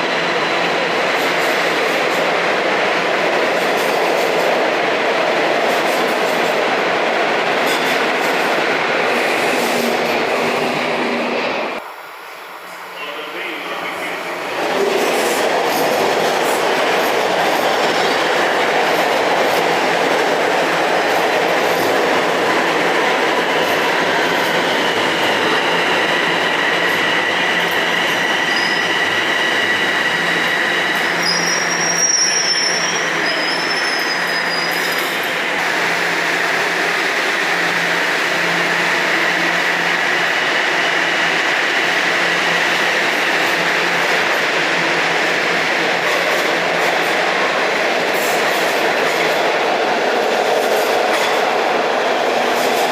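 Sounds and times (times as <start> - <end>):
subway train wheels rumbling: 0.0 - 52.9
wheel squeal: 28.4 - 29.8, 31.0 - 35.2.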